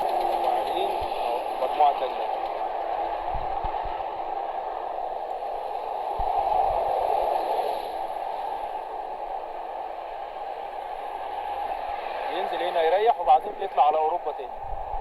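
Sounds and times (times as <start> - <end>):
outdoor rushing noise: 0.0 - 15.0
wind buffeting microphone: 0.0 - 15.0.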